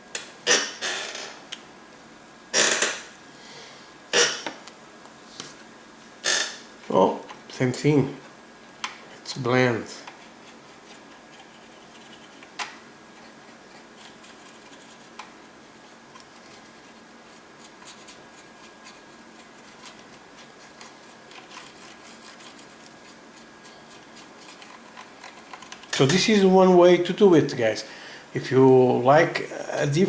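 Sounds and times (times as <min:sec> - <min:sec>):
paintbrush scratching and ticking: 0:13.2 - 0:25.7.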